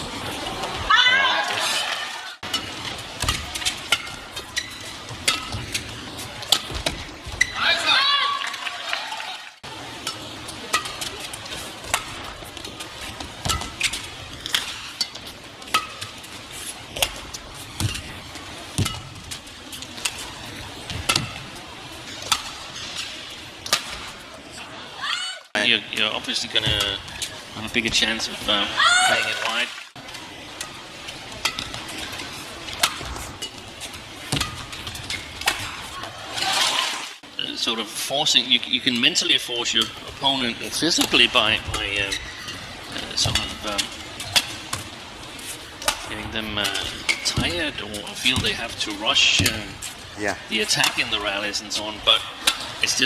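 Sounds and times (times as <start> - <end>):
crowd murmur: 0.0 - 7.2, 19.4 - 25.5
arena background noise: 0.0 - 53.0
rackets striking shuttlecock: 2.4 - 7.0, 10.0 - 12.4, 13.4 - 16.2, 16.9 - 21.5, 22.1 - 24.2, 30.5 - 36.1, 45.7 - 47.6, 52.3 - 52.9
shoes squeaking on court: 2.6 - 7.6, 9.9 - 24.3, 30.2 - 36.7, 41.1 - 46.1.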